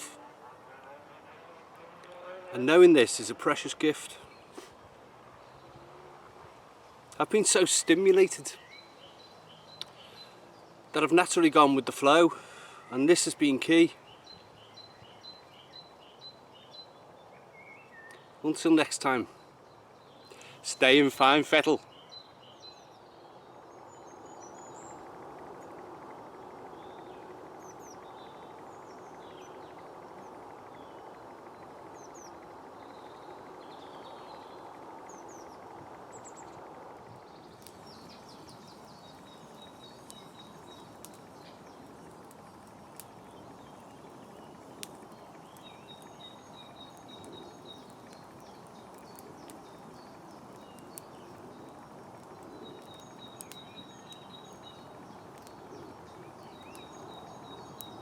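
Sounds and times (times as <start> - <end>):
faint sharp clicks: 9.7 - 10.3, 34.6 - 58.0
steady background noise: 23.1 - 58.0.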